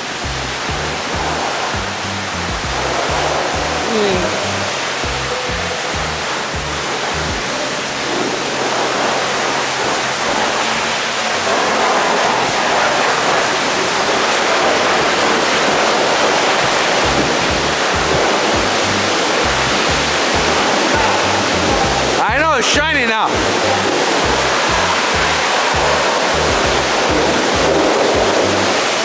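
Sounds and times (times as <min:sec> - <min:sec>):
high-pressure water spraying: 0:00.0 - 0:29.0.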